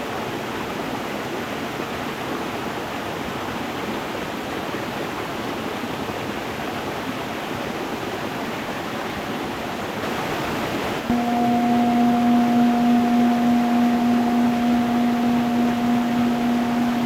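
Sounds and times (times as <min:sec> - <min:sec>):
singing bowl ringing: 0:11.1 - 0:17.0.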